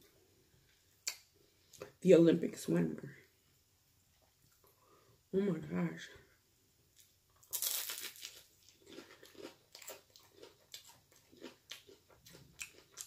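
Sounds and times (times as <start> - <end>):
chewing with small crunches: 7.0 - 13.0
crunchy bite: 7.4 - 13.0.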